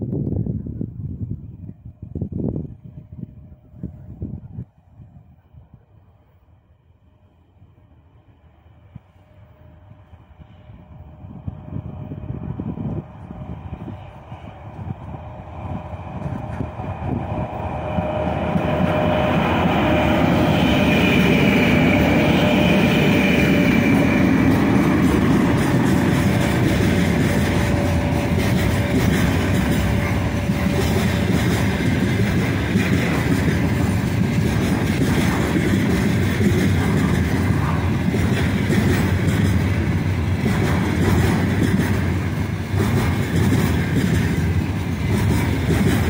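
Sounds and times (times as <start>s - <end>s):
electric locomotive high whine: 0.0s - 46.0s
wagons rumbling and clattering on rails: 9.2s - 46.0s.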